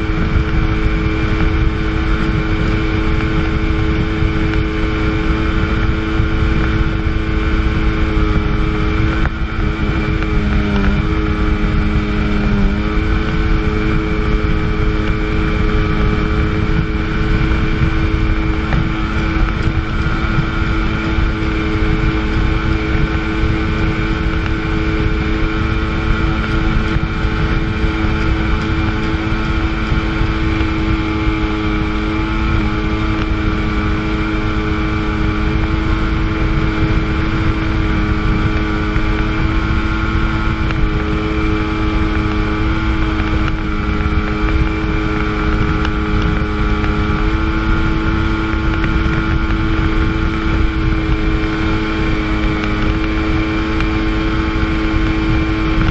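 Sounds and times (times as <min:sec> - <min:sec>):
jet ski engine at high revs: 0:00.0 - 0:55.9
water rushing: 0:00.0 - 0:55.9
wind: 0:00.0 - 0:55.9.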